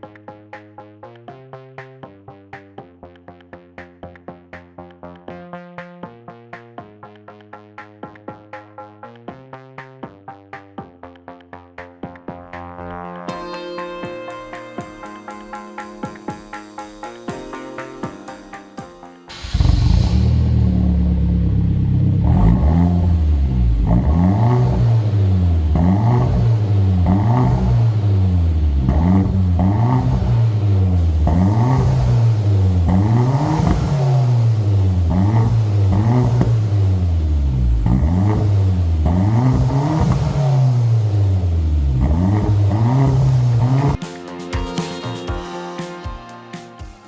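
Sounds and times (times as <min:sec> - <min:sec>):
car engine revving: 0:19.3 - 0:44.0.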